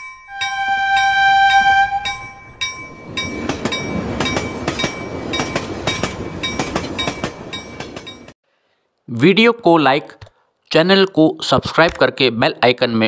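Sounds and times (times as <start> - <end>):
train passing with wheel clicks: 0.0 - 8.4
train horn blast: 0.3 - 2.4.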